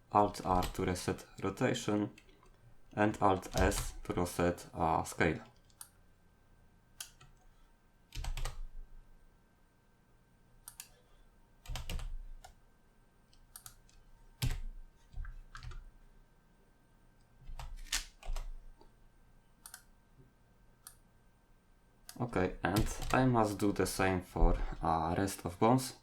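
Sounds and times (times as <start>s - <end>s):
computer keyboard keystrokes: 0.4s - 0.8s, 3.4s - 4.1s, 7.0s - 7.4s, 8.1s - 8.7s, 10.7s - 11.0s, 11.6s - 12.6s, 13.4s - 15.8s, 17.5s - 18.6s, 22.1s - 23.2s.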